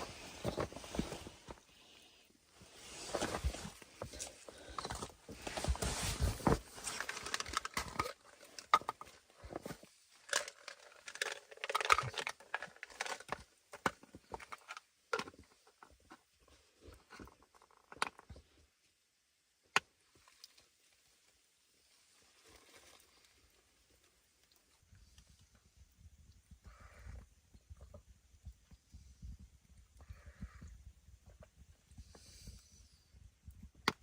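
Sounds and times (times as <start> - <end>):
rustling and crinkling handling: 0.0 - 18.5.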